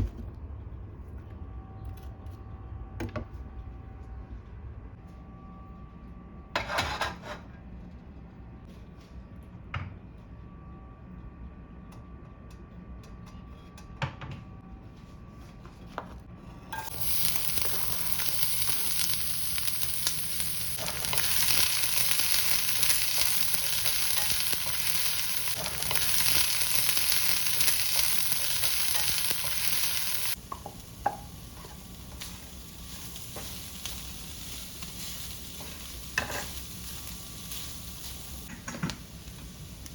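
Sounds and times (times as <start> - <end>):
food sizzling in a pan: 16.8 - 39.9.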